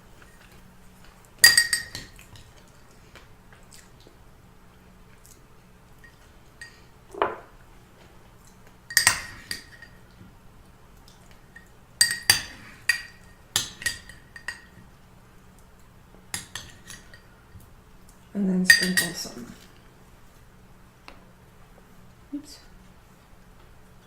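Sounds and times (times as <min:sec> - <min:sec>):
utensils clinking against dish: 0:01.4 - 0:02.5, 0:08.9 - 0:10.0, 0:12.0 - 0:14.8, 0:16.4 - 0:17.3, 0:18.7 - 0:19.7.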